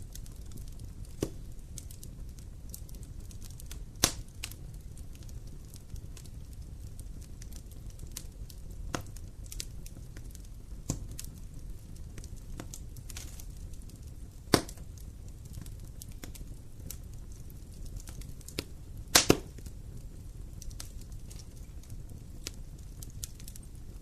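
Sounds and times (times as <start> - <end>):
campfire crackling and popping: 0.0 - 24.0.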